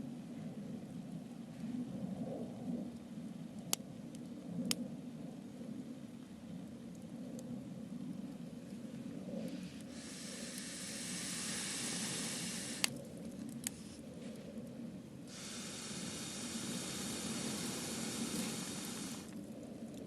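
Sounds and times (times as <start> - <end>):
campfire hissing: 9.4 - 14.4, 15.2 - 19.6
campfire crackling pops: 10.2 - 13.9, 15.3 - 20.0.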